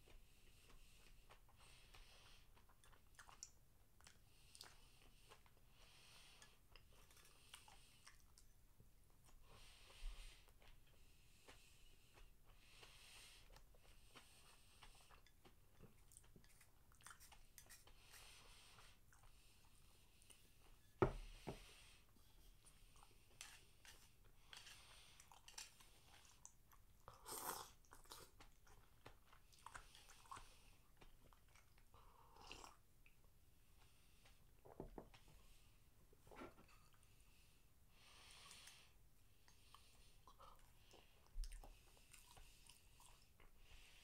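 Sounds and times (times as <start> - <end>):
chewing and mouth sounds: 0.1 - 5.6, 6.4 - 9.5, 10.4 - 20.9, 22.5 - 33.2, 38.4 - 44.0.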